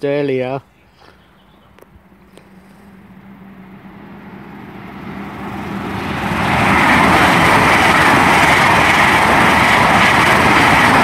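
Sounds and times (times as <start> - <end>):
train passing at speed: 1.2 - 11.0.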